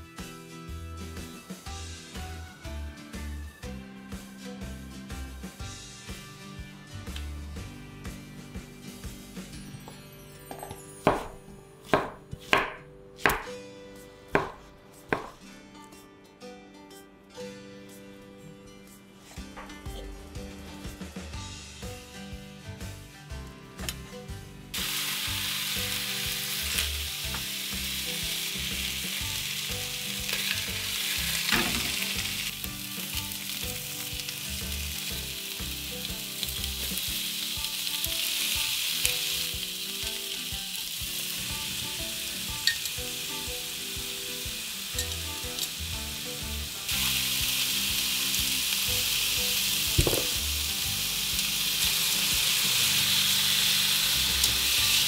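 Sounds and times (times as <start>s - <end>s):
faint background music: 0.0s - 55.0s
food sizzling in a frying pan: 24.7s - 55.0s.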